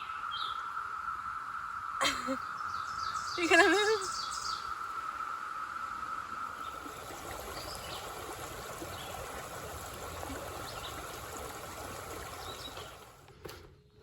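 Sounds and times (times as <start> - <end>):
running water: 3.4 - 4.3, 6.2 - 13.4.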